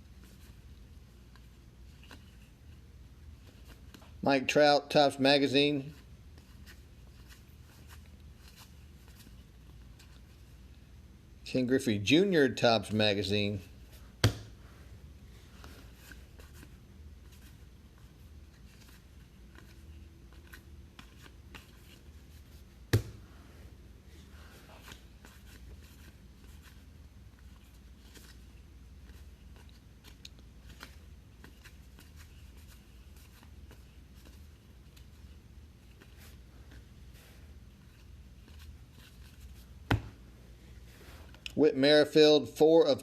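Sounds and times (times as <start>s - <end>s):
low room hum: 0.0s - 43.0s
cards being flipped through: 0.1s - 4.2s, 5.9s - 10.8s, 15.4s - 23.3s, 24.5s - 40.2s.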